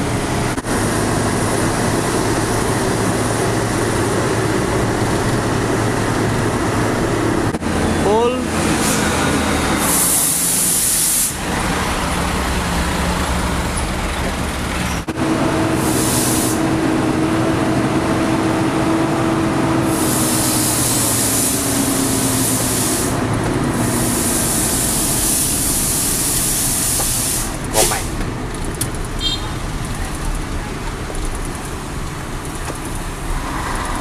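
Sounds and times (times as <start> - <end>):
truck diesel engine running: 0.0 - 34.0
high hissing air bursts: 8.8 - 11.4, 15.8 - 16.6, 19.8 - 28.2.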